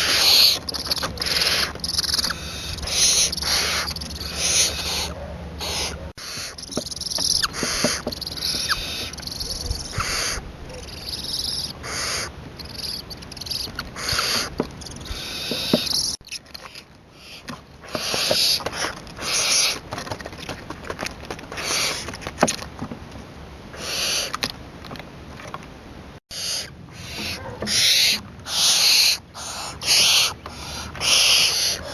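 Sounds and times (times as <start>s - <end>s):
young owl hissing calls: 0.0s - 16.2s, 17.2s - 19.8s, 21.6s - 22.1s, 23.8s - 24.4s, 26.3s - 31.9s.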